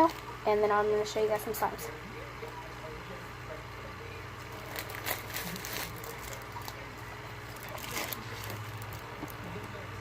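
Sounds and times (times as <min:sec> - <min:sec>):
low electrical hum: 0:00.0 - 0:10.0
soft eating clicks and rustles: 0:03.8 - 0:09.9.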